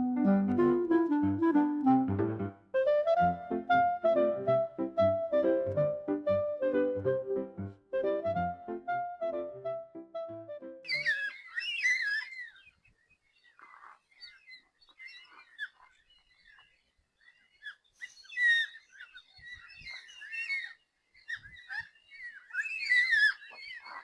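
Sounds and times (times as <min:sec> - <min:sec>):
cockatoos wailing calls: 0:10.9 - 0:24.0.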